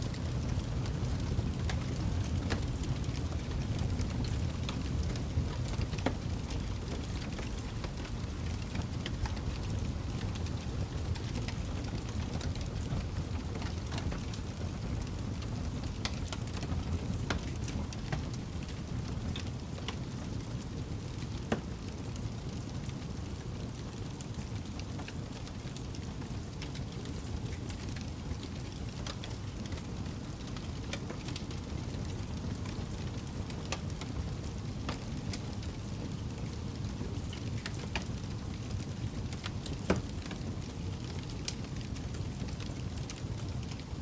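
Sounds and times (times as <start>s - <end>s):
flames rumbling: 0.0s - 44.0s
campfire crackling and popping: 0.1s - 44.0s.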